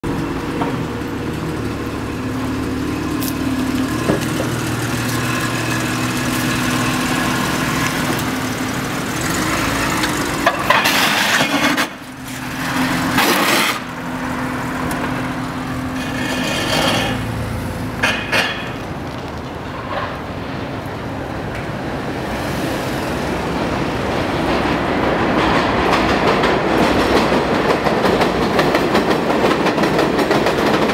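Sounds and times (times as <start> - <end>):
car engine running: 0.0 - 18.1.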